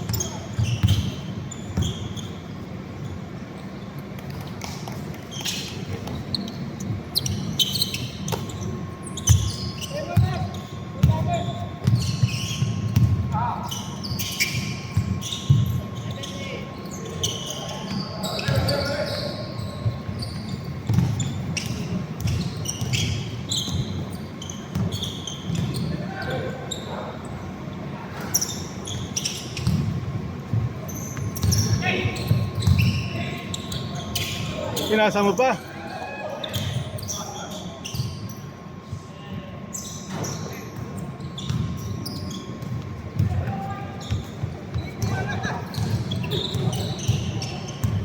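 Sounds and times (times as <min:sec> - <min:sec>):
basketball bouncing on court: 0:00.0 - 0:02.4, 0:04.2 - 0:13.5, 0:14.3 - 0:16.1, 0:17.9 - 0:26.0, 0:29.3 - 0:34.3, 0:40.1 - 0:48.0
murmur of hall: 0:00.0 - 0:48.0
sneakers squeaking on floor: 0:00.0 - 0:48.0.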